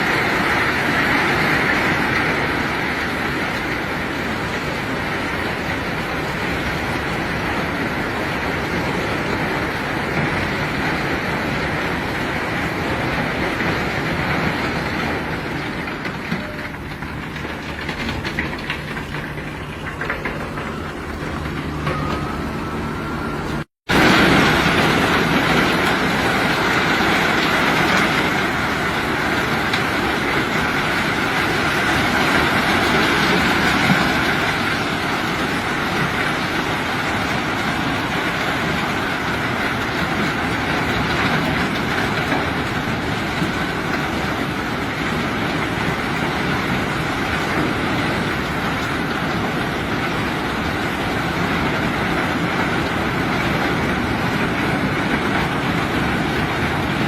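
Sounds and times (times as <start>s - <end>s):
heavy machinery rumbling and rattling: 0.0s - 57.0s.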